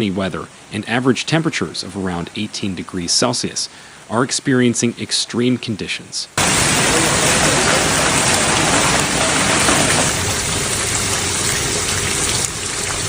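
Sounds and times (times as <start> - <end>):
heavy rain pouring: 6.4 - 13.0.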